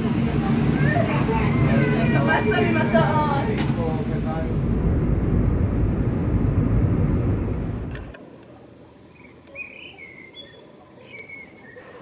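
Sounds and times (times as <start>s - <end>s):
loud vehicle rumble: 0.0s - 8.2s
bird chirps: 9.1s - 12.0s.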